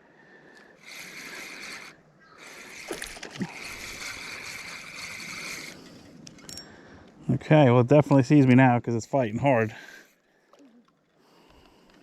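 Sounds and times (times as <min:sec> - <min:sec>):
fishing reel whirring: 0:00.5 - 0:06.6.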